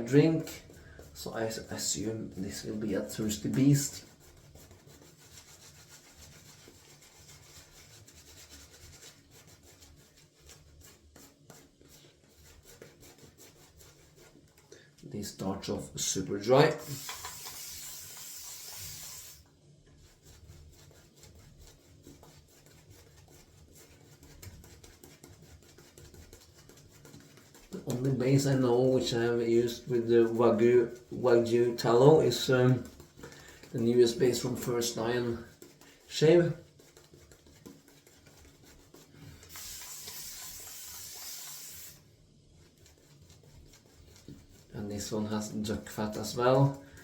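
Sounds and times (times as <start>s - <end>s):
shaving brush rubbing soap: 0.0s - 47.0s
steady hiss: 16.7s - 19.4s, 39.1s - 42.1s.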